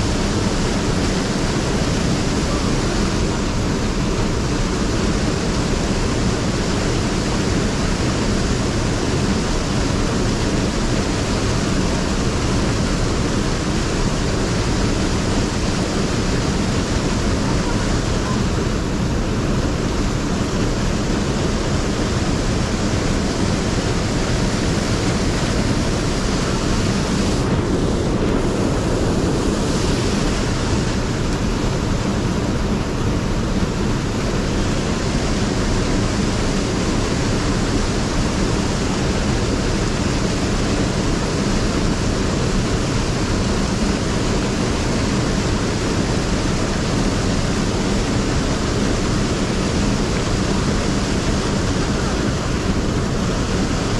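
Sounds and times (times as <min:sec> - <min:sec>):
stream water rushing: 0:00.0 - 0:53.9.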